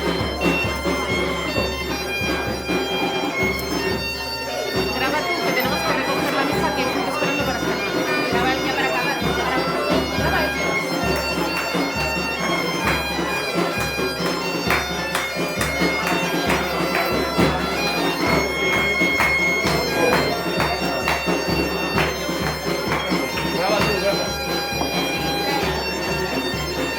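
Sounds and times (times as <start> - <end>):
bagpipe tune with drone: 0.0 - 26.9
drum beating: 0.0 - 26.9.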